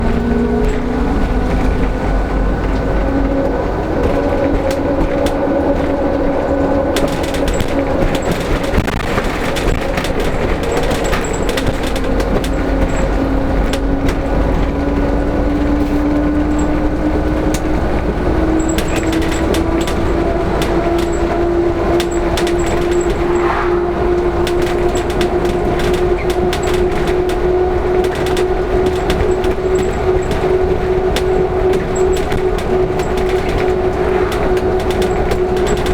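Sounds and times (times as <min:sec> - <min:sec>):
bus engine and road rumble: 0:00.0 - 0:35.9
small clicks and rattles: 0:02.7 - 0:23.5, 0:24.2 - 0:35.9
drivetrain whine rising in pitch: 0:22.1 - 0:24.7, 0:30.9 - 0:35.9.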